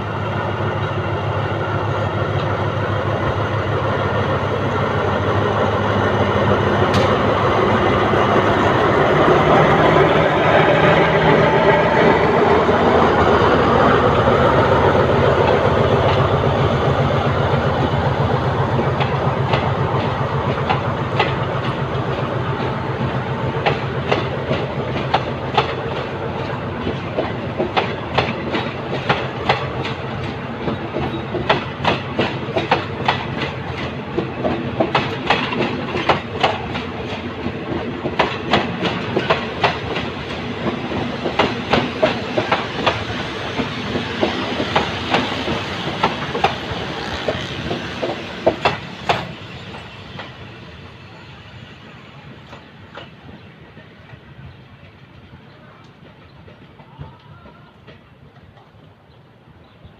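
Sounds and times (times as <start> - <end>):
diesel locomotive engine hum: 0.0 - 59.9
train wheels clacking over rail joints: 6.7 - 13.2, 18.8 - 50.4.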